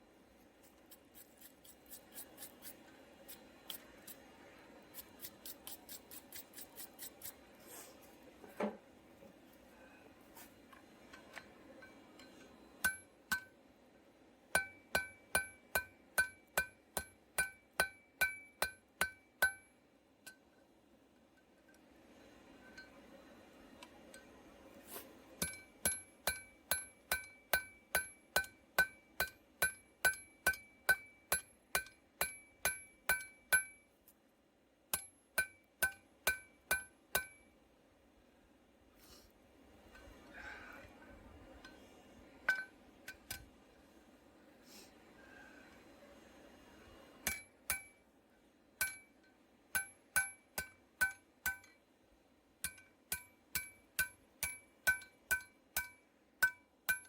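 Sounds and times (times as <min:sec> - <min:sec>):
hammer ringing on anvil: 0:12.8 - 0:13.5, 0:14.6 - 0:19.7, 0:25.4 - 0:33.8, 0:35.0 - 0:37.5, 0:48.8 - 0:49.2, 0:49.8 - 0:51.7, 0:52.6 - 0:57.0.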